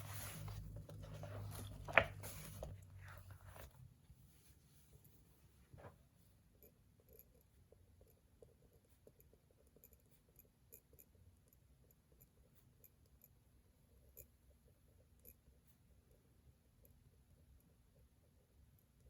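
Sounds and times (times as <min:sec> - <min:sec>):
pen scratching on paper: 0:00.0 - 0:03.7.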